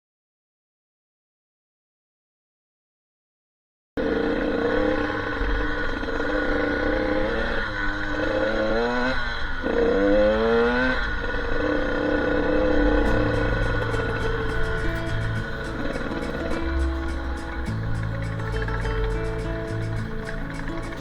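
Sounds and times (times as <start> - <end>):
dirt bike engine revving: 4.0 - 21.0.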